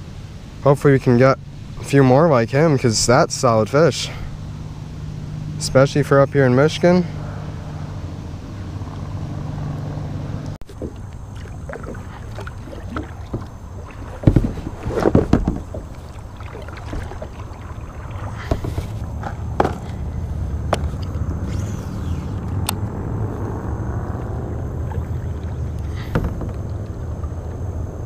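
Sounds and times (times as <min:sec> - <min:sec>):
steady low hum: 0:00.0 - 0:28.0
paddle splashing in water: 0:10.6 - 0:19.3, 0:24.5 - 0:26.6.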